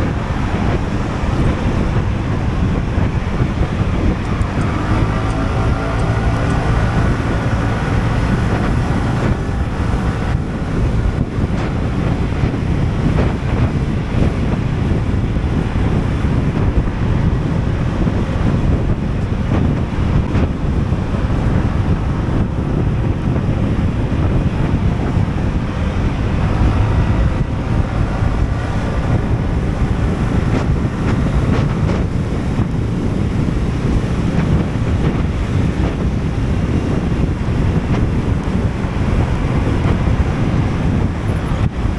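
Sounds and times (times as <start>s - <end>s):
faint scooter engine: 0.0s - 16.0s, 23.4s - 41.9s
wind buffeting microphone: 0.0s - 41.9s.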